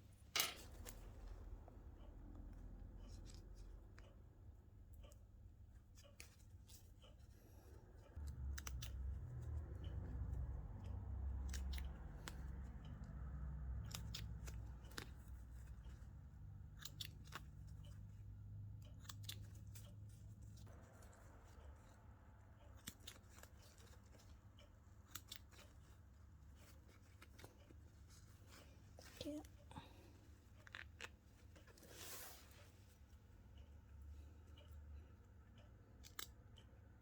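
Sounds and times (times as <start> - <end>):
scissors snipping thread: 8.1 - 20.0, 22.6 - 25.8, 35.9 - 36.8.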